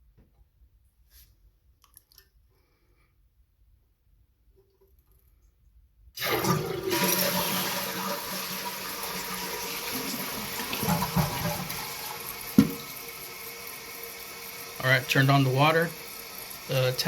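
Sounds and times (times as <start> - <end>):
water rushing into toilet: 6.2 - 17.0.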